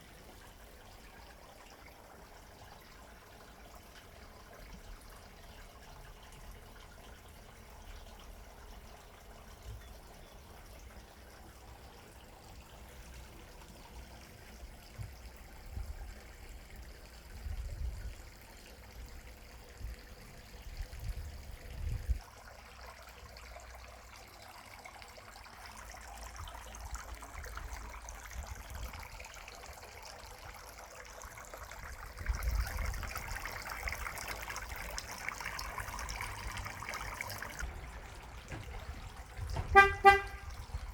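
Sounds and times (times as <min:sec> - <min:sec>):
water trickling: 0:00.0 - 0:40.9
low rumbles: 0:37.6 - 0:40.9.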